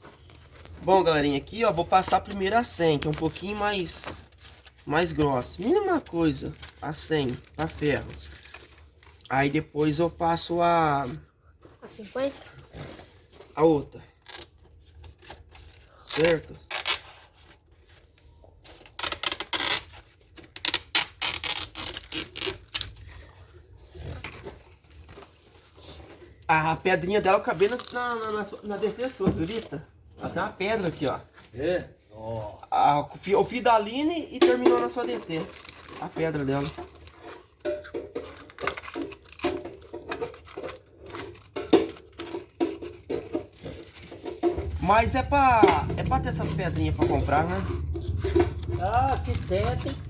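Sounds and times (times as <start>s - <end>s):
small metal tools clicking and scraping: 27.0s - 29.8s, 34.4s - 45.0s.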